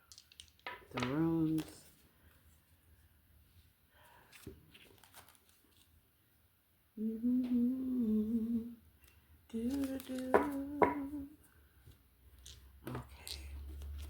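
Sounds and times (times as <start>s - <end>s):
woman humming: 7.0s - 8.8s.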